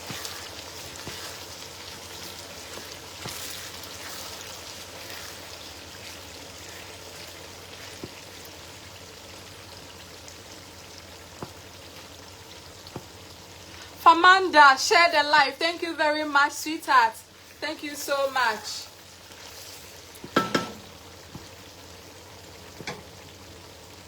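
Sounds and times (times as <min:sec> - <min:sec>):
water running and splashing: 0:00.0 - 0:13.9.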